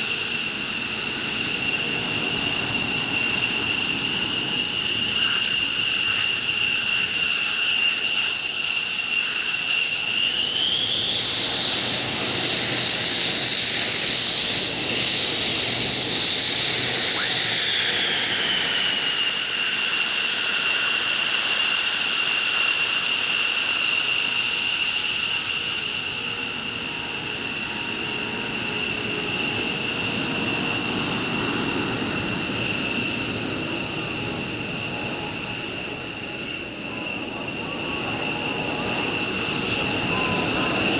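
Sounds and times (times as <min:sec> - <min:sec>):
jet engines whining: 0:00.0 - 0:40.9.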